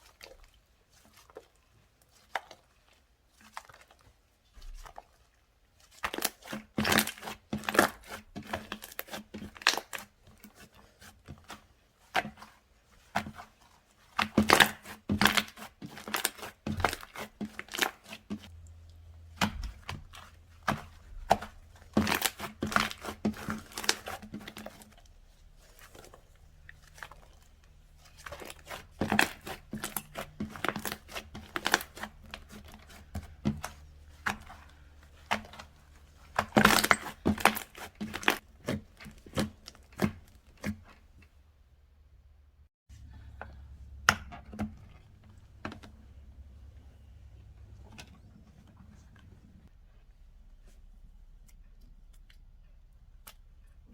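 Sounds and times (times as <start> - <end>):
slime crackling and popping: 19.4 - 25.1, 26.6 - 33.3.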